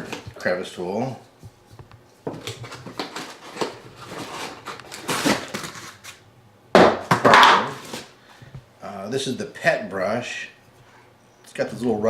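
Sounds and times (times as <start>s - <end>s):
plastic rustling and clatter: 1.8s - 6.2s.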